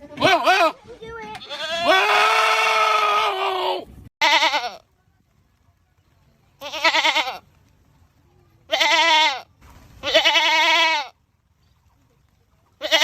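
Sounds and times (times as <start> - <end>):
goat screaming: 1.4 - 4.8.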